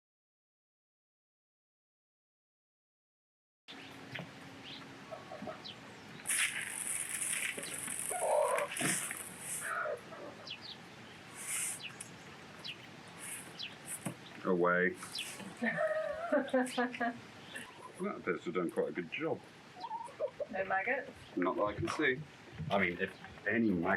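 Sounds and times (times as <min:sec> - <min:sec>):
birds chirping: 0:03.7 - 0:23.9
fowl clucking: 0:05.1 - 0:05.8, 0:15.0 - 0:18.0, 0:19.8 - 0:21.1.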